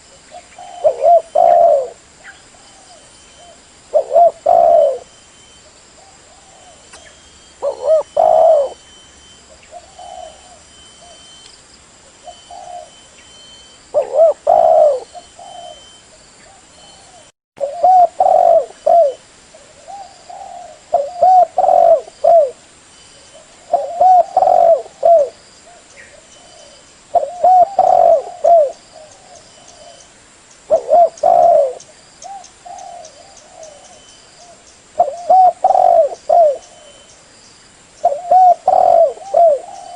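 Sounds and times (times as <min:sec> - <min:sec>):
dove cooing: 0:00.0 - 0:08.9, 0:09.5 - 0:11.3, 0:12.1 - 0:22.6, 0:23.4 - 0:30.1, 0:30.7 - 0:37.2, 0:38.0 - 0:39.9.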